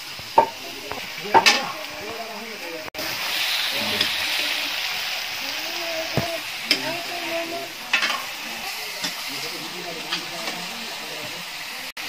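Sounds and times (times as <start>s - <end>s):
meat sizzling in a wok: 0.0s - 12.0s
murmur of voices: 0.4s - 12.0s.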